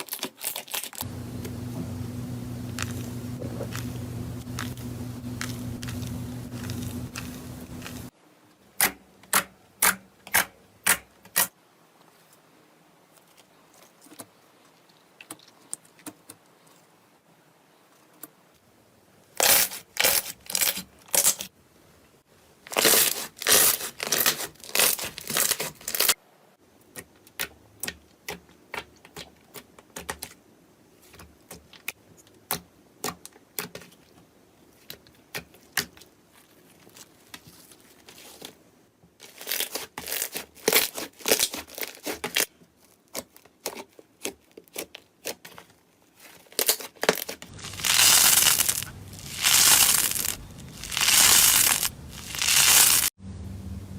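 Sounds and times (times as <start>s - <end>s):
slime crackling and popping: 2.6s - 8.1s, 46.6s - 53.1s.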